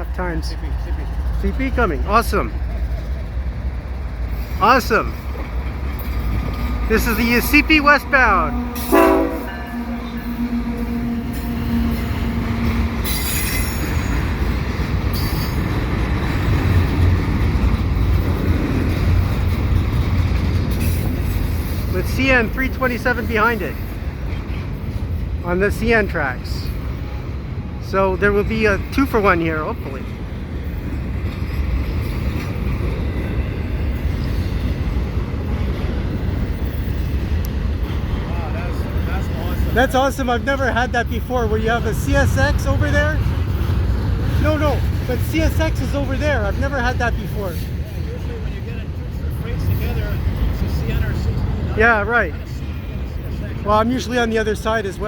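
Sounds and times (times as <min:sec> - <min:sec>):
freight train rumbling: 0:00.0 - 0:55.0
high-pitched wheel squeals: 0:07.1 - 0:14.3.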